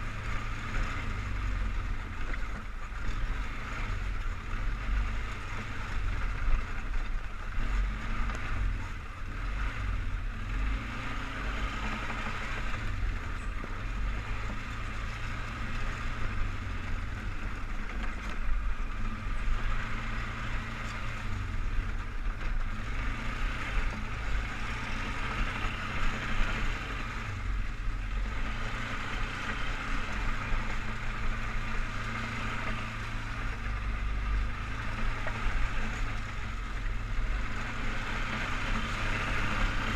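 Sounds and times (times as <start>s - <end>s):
atv engine rumbling: 0.0s - 39.9s.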